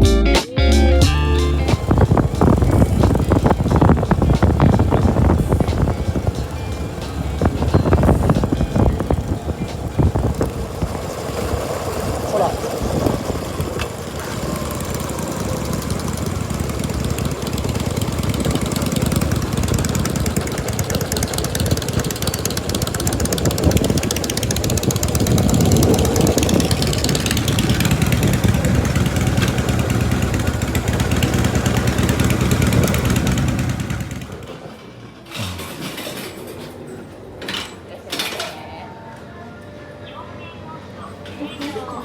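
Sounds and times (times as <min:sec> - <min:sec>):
motorcycle engine running: 0:01.0 - 0:34.6.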